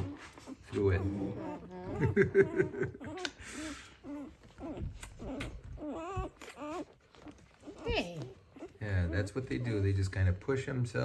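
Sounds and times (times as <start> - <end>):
puppies whimpering and squeaking: 0.0 - 10.1.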